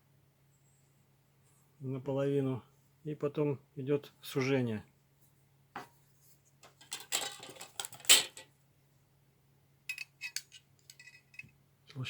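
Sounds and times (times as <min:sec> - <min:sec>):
knife handling rustle: 0:06.6 - 0:08.5, 0:09.9 - 0:11.5.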